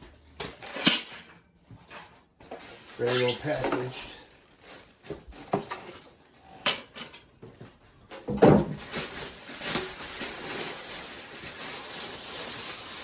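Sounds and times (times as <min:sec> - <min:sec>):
rustling and scraping of box: 0:02.6 - 0:06.2.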